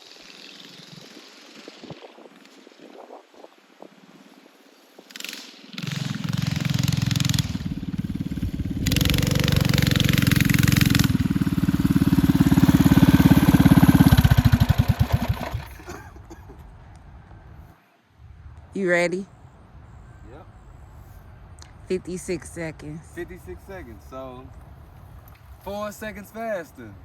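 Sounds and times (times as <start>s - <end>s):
mini bike engine revving: 0.0s - 2.0s, 5.1s - 16.0s.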